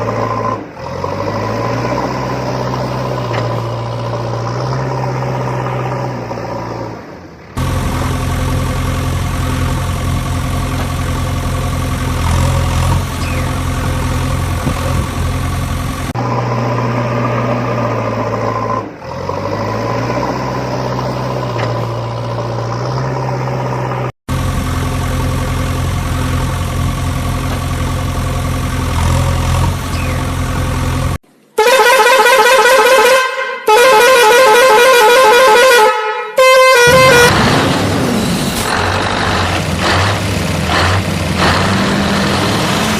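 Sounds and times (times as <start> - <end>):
vehicle engine running: 0.0 - 31.2, 36.8 - 42.9
warbling vehicle horn blasts: 31.6 - 37.4.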